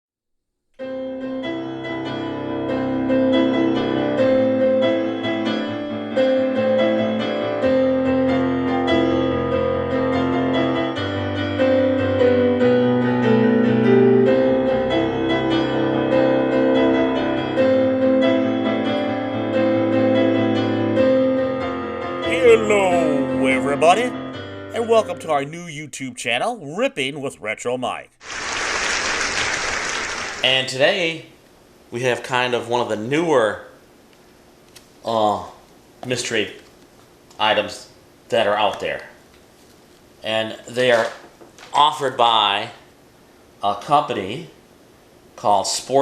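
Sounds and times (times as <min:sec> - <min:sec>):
keyboard chords over bass line: 0:00.8 - 0:25.6.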